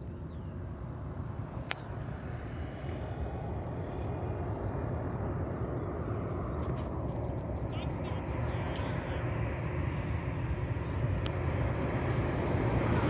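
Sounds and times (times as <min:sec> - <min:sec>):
aircraft engine rush: 0:00.0 - 0:13.0.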